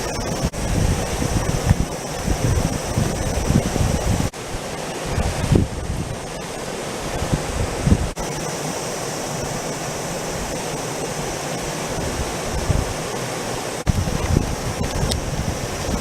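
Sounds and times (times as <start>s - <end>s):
wind buffeting microphone: 0.0s - 4.3s, 5.1s - 6.2s, 7.0s - 8.2s, 11.9s - 13.1s, 13.8s - 16.0s.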